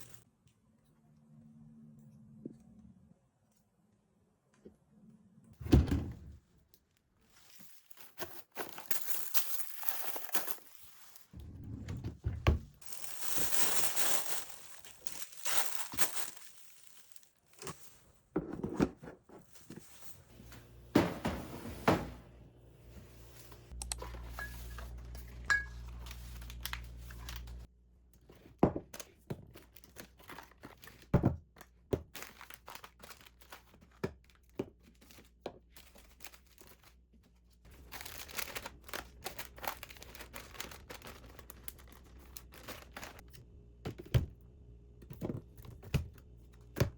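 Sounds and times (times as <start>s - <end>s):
wrappings crinkling: 7.2s - 11.4s, 12.8s - 18.0s, 25.0s - 27.7s, 37.7s - 43.4s
objects knocking down: 20.5s - 22.2s.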